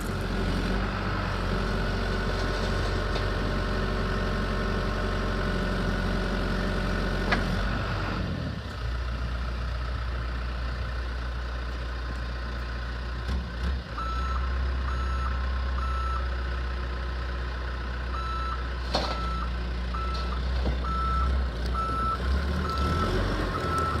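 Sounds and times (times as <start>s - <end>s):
diesel engine drone: 0.0s - 24.0s
reversing alarm beeping: 14.0s - 16.2s, 18.2s - 18.6s, 19.2s - 24.0s.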